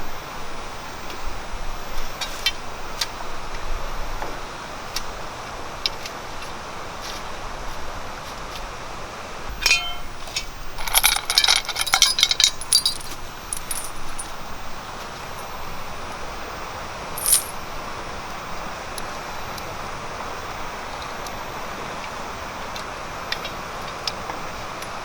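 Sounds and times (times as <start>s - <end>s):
steady hiss: 0.0s - 25.0s
hard objects clinking: 9.6s - 14.4s, 17.1s - 17.7s.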